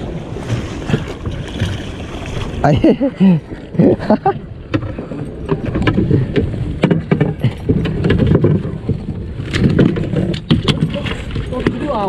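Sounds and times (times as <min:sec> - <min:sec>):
boat rumbling: 0:00.0 - 0:12.0
sharp knocks and clicks: 0:05.5 - 0:10.9.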